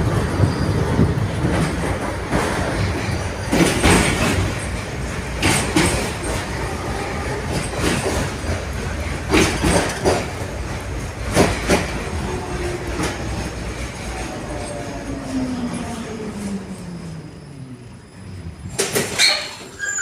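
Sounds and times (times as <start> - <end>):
tram rumbling along track: 0.0 - 20.0
wheels knocking over rail joints: 1.4 - 14.2.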